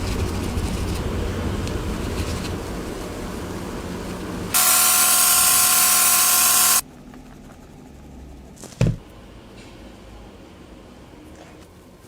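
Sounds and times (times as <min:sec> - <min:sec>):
air tool hissing and whining: 0:04.5 - 0:06.8.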